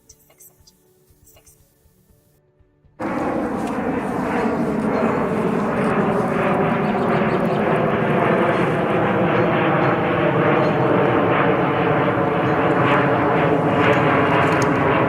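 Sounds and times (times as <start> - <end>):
jet engine drone: 3.0 - 15.0.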